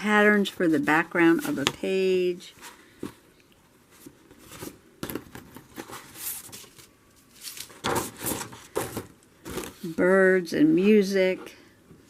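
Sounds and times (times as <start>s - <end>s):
plastic sheets crinkling: 4.0s - 10.0s.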